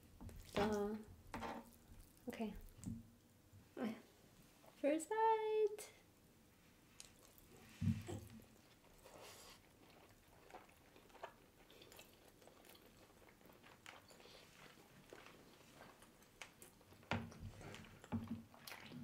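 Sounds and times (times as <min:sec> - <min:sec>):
chewing rice: 0:06.9 - 0:19.0.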